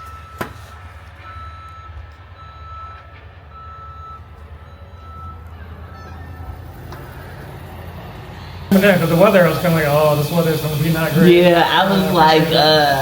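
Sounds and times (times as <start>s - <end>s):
low engine rumble: 0.0s - 13.0s
truck backup alarm beeping: 0.0s - 13.0s.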